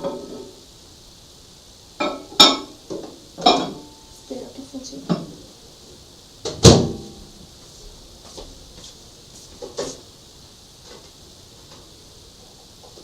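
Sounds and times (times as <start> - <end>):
microwave door shutting: 6.5 - 7.1.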